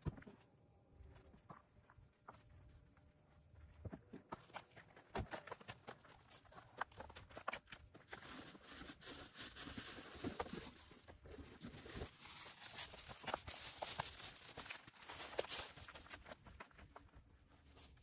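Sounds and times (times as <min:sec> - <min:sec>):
rustling: 0:06.0 - 0:18.0.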